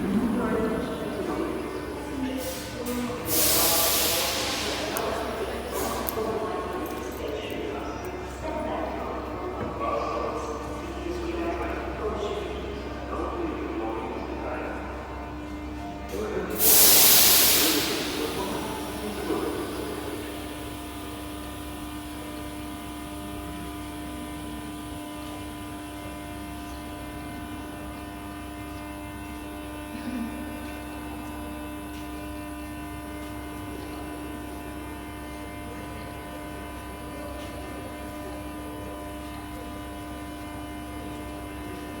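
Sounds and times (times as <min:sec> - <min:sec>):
train electrical hum: 0:00.0 - 0:42.0
air hiss: 0:02.4 - 0:06.1, 0:16.5 - 0:20.7.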